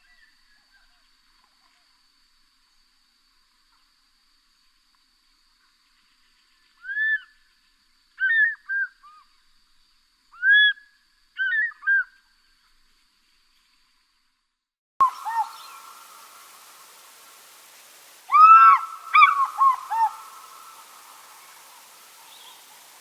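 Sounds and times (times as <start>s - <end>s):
eagle calling: 15.0s - 23.0s.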